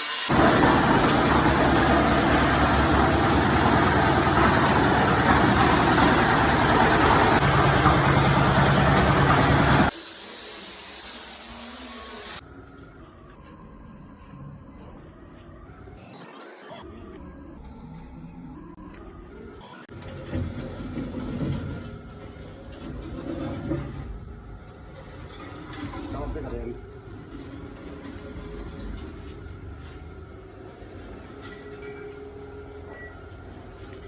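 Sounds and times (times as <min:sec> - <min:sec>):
concrete mixer running: 0:00.2 - 0:12.4, 0:19.9 - 0:31.8.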